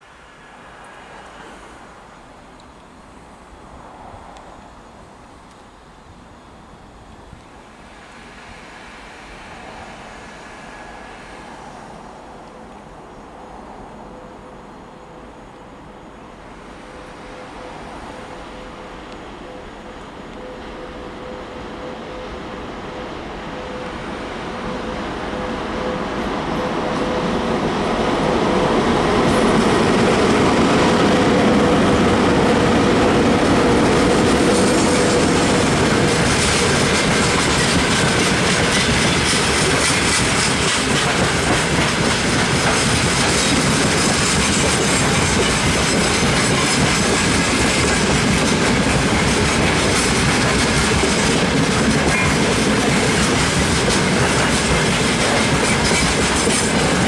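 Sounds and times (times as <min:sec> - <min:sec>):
freight train rolling past: 0:00.0 - 0:57.0
wheels clattering over rail joints: 0:33.0 - 0:57.0.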